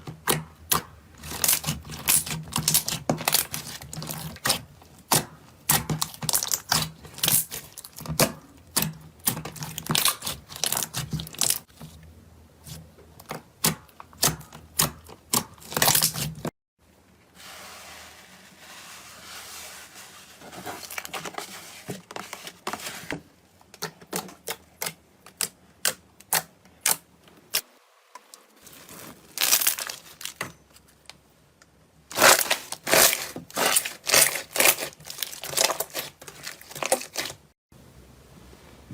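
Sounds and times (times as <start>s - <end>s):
slime crackling and popping: 0.7s - 11.7s.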